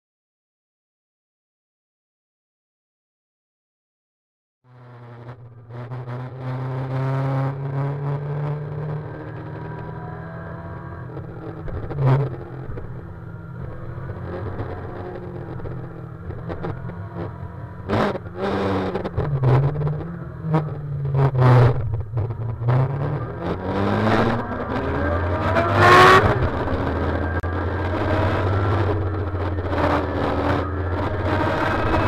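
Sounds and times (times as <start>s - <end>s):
motorcycle engine: 4.7s - 32.0s.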